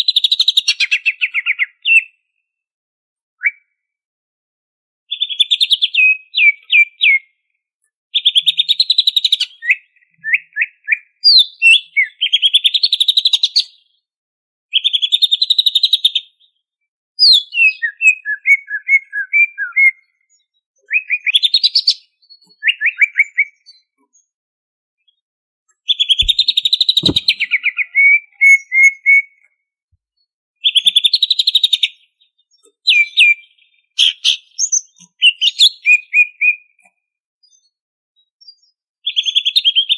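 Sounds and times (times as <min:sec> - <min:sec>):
bird chattering trills and whistles: 0:25.9 - 0:29.2, 0:32.8 - 0:36.8.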